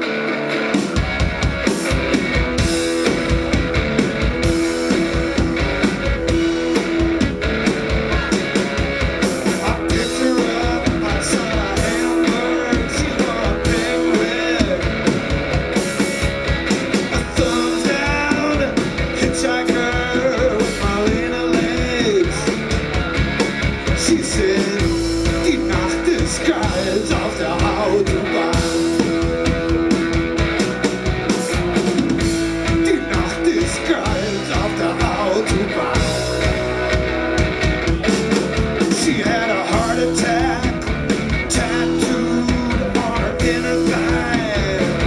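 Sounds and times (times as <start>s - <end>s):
electric guitar: 0.0s - 45.0s
drum kit beat: 0.5s - 45.0s.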